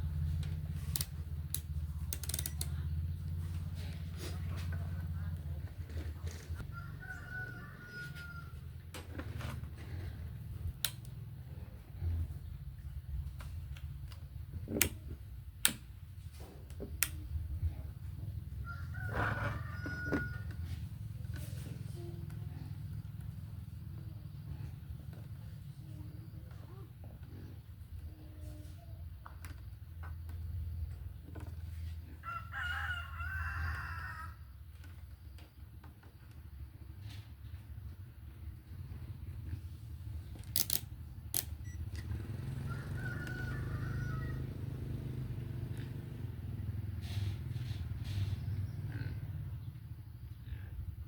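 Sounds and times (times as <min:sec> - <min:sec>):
low steady hum: 0:00.0 - 0:42.2
small clicks: 0:00.4 - 0:03.4, 0:40.3 - 0:42.2
rooster crowing: 0:06.6 - 0:08.8, 0:18.6 - 0:20.8, 0:32.2 - 0:34.5, 0:42.4 - 0:45.0
steady low hum: 0:34.3 - 0:42.2.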